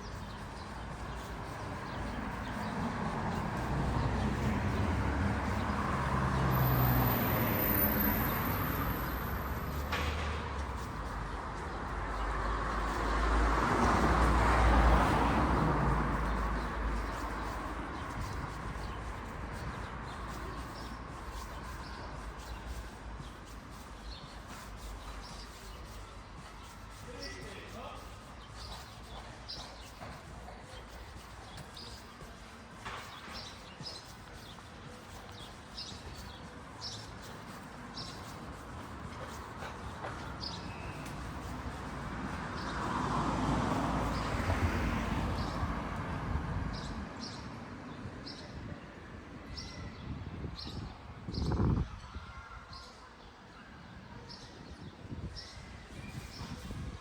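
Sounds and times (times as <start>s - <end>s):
outdoor background noise: 0.0s - 57.0s
vehicle passing: 0.9s - 22.3s.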